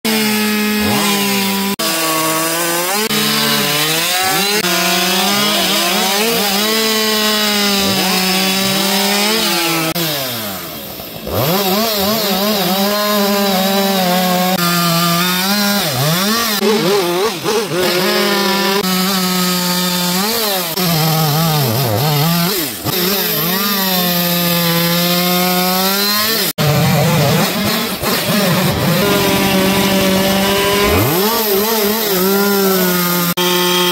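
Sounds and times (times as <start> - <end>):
chainsaw cutting wood: 0.1 - 33.9.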